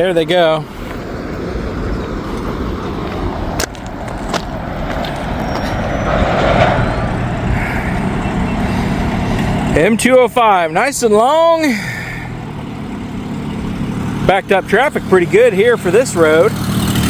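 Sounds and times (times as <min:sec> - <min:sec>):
train wheels rumbling on rail: 0:01.6 - 0:10.0.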